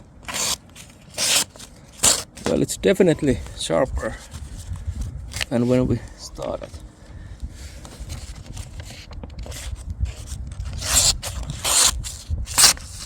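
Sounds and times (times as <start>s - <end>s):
knife slicing paper: 0.2s - 2.5s, 10.6s - 13.0s.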